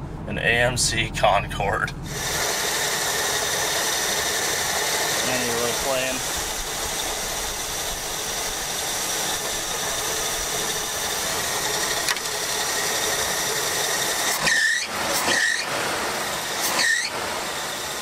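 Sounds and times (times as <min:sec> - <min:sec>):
car engine idling: 0:00.0 - 0:18.0
short high squeals: 0:14.2 - 0:15.7, 0:16.6 - 0:17.2.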